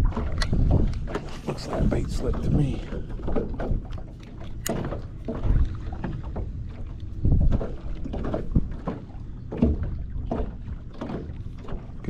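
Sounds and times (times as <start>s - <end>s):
gusty wind on microphone: 0.0s - 6.1s, 7.0s - 8.8s
water lapping against boat hull: 0.0s - 12.0s.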